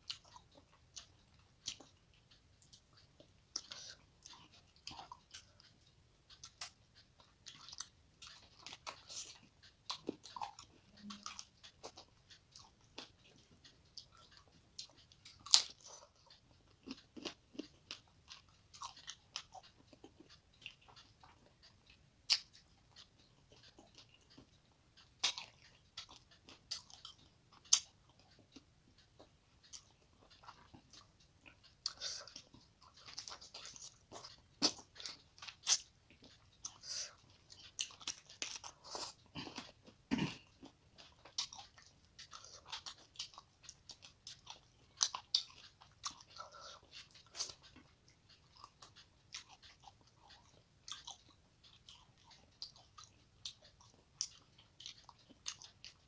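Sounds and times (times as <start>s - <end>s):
person chewing food: 0.0s - 56.0s
wet mouth clicks: 2.6s - 5.7s, 6.3s - 56.0s.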